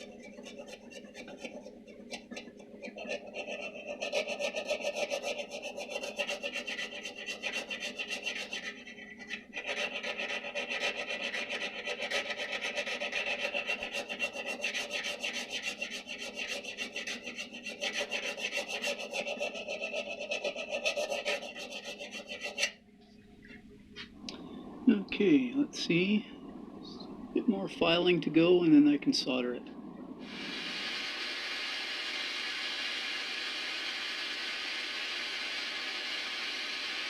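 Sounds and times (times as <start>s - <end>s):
hand file rasping on metal: 0.0s - 22.8s.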